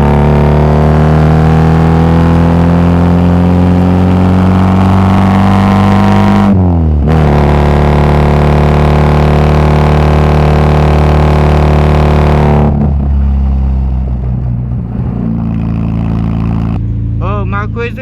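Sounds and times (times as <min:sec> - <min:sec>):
car engine under throttle: 0:00.0 - 0:18.0.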